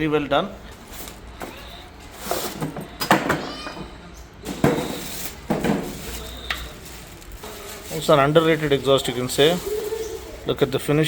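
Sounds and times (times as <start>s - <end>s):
knocks and clacks of handled parts: 2.2s - 3.8s.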